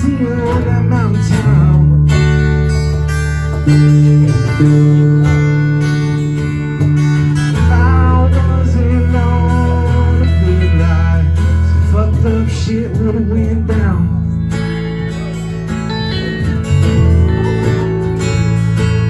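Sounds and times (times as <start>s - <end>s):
country band playing: 0.0s - 19.0s.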